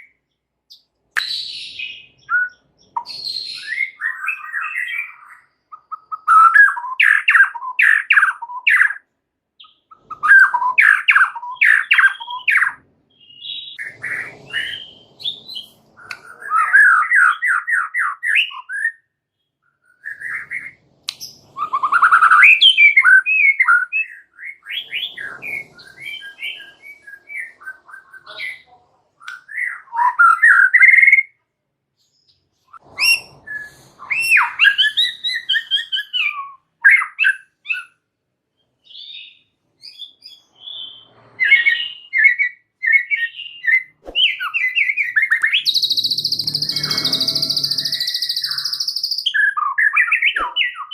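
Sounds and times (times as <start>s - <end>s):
songbird singing rapid notes: 38.8s - 50.9s.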